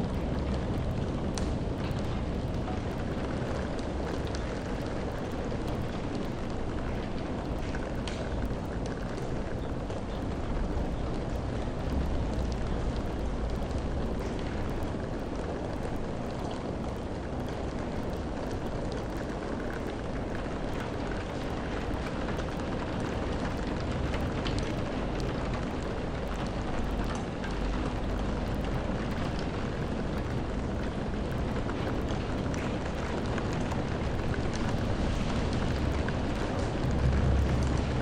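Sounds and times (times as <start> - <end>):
steady rain: 0.0 - 38.0
low rumble: 35.9 - 38.0.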